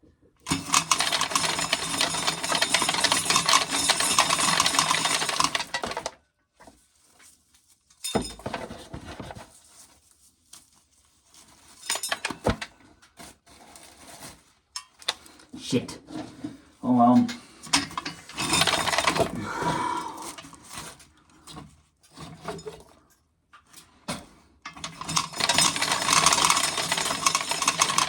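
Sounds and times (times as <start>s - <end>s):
corn kernels rattling: 0.5s - 6.0s, 18.4s - 19.4s, 24.9s - 28.0s
scattered clicks and knocks: 24.7s - 28.0s.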